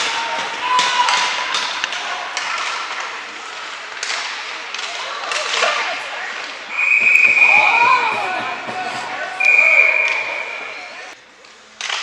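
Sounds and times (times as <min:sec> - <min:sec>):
crowd chatter: 0:01.7 - 0:11.8
sharp knocks of play: 0:06.7 - 0:09.4.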